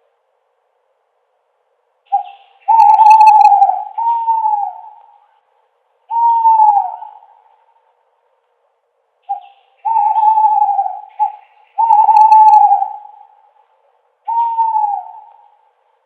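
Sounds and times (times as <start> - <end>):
owl hooting: 2.1 - 5.4, 6.1 - 7.8, 9.2 - 15.8.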